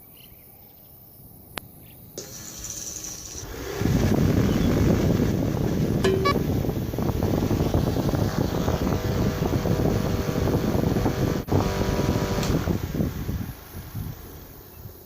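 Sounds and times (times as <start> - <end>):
small fan motor humming: 3.4 - 14.5
air rush buffeting microphone: 3.5 - 15.0.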